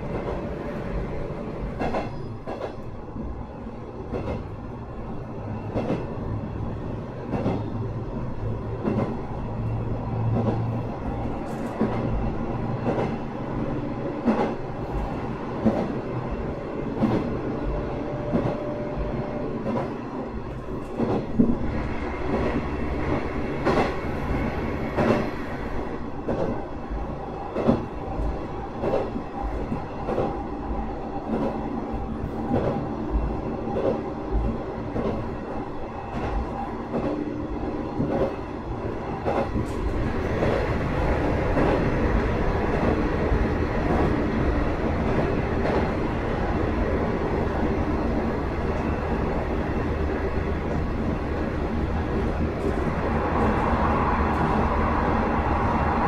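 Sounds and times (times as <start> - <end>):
railcar engine drone: 0.0 - 56.0.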